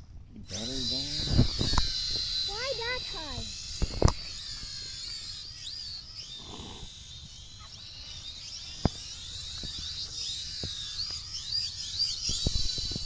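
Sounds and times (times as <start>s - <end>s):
birds chirping: 0.0s - 13.0s
high-pitched whine: 0.4s - 13.0s
sharp click: 1.2s - 2.0s, 3.8s - 4.3s.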